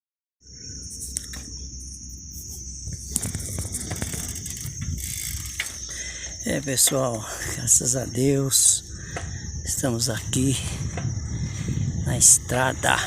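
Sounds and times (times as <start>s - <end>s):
high-pitched insect buzz: 0.4s - 13.0s
wind and handling rumble: 0.5s - 13.0s
sharp clicks: 2.9s - 5.8s.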